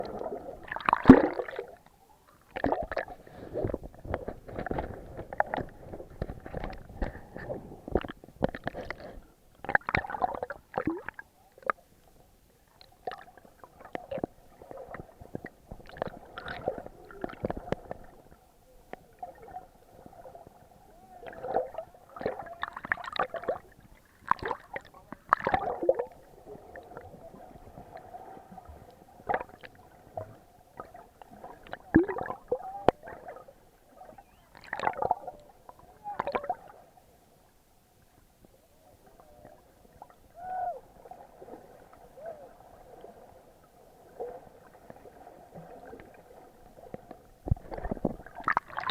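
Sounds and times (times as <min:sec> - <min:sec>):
muffled water sloshing: 0:00.0 - 0:11.3.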